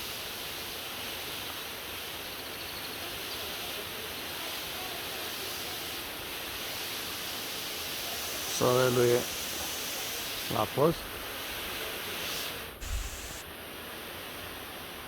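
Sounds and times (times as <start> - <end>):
waterfall rushing: 3.0 - 13.4.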